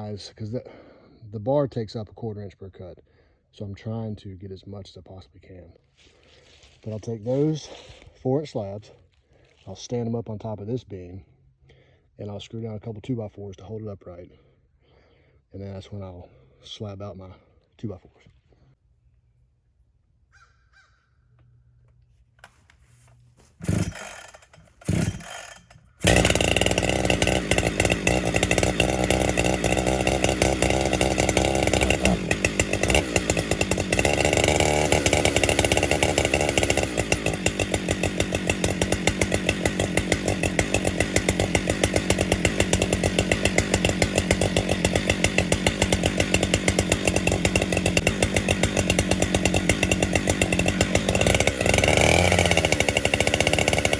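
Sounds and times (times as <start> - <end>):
chainsaw cutting a log: 23.6 - 53.9.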